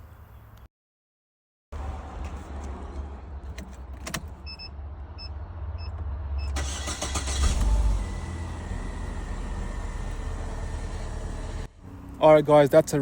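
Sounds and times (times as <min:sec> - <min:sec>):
car engine running: 0:06.6 - 0:12.3.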